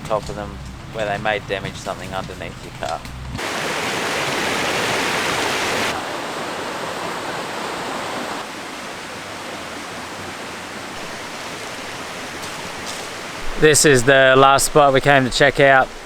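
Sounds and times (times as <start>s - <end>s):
river water rushing over rocks: 3.4s - 16.0s.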